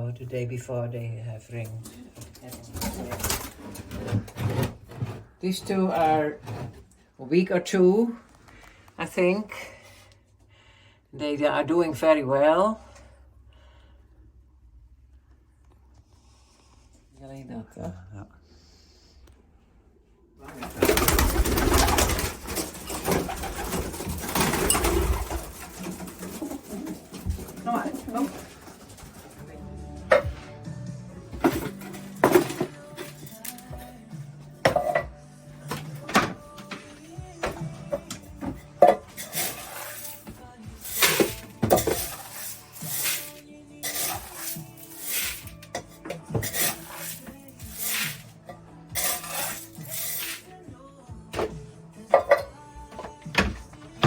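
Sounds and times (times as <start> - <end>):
loud rustling: 20.5 - 29.6
pigeons cooing: 20.7 - 29.4
grain being scooped and stirred: 39.2 - 45.6, 46.4 - 48.4, 49.0 - 50.5.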